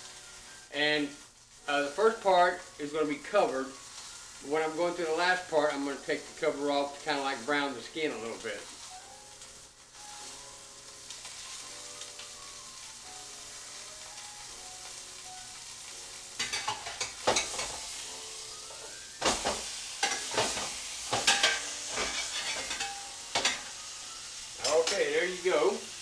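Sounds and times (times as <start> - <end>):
chicken sizzling in oil: 0.0 - 26.0
utensil scraping a pan: 18.8 - 23.7.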